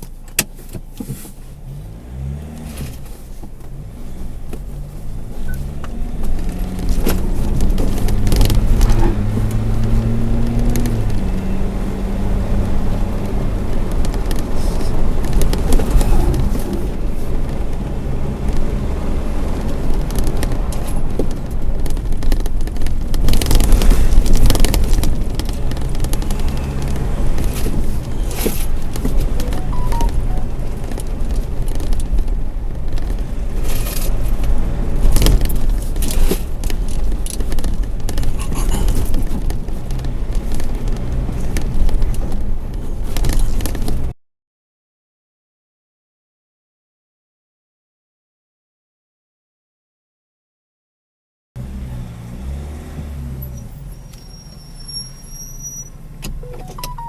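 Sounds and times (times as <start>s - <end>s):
vehicle low rumble: 0.0s - 44.2s
rattles and clicks: 19.5s - 44.1s.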